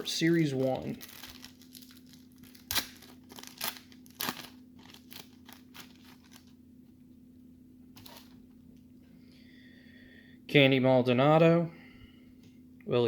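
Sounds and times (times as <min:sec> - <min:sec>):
card pack wrapper crinkling: 0:00.0 - 0:06.6, 0:08.0 - 0:08.4.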